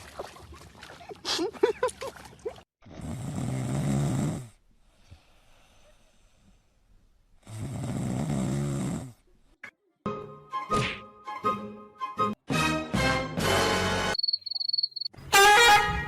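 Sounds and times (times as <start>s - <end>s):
person snoring: 2.9s - 4.6s, 7.4s - 9.3s
quiet breathing: 4.4s - 8.0s.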